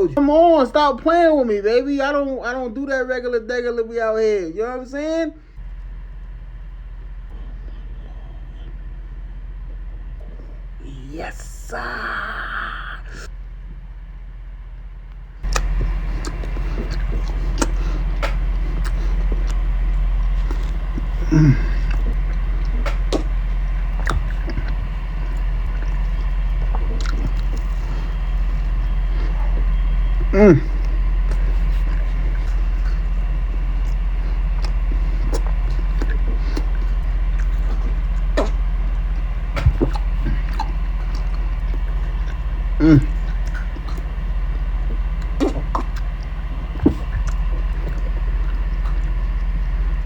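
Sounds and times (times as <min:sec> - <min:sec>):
steady low hum: 0:00.0 - 0:50.0
crunching and chewing sandwich: 0:15.1 - 0:50.0
mouth clicks: 0:15.4 - 0:19.6, 0:33.8 - 0:49.8.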